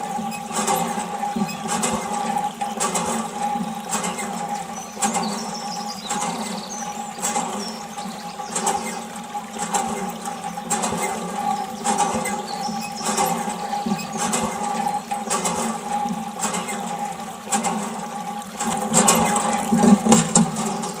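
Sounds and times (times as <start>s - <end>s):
water pump humming: 0.0s - 21.0s
water splashing in surges: 0.0s - 21.0s.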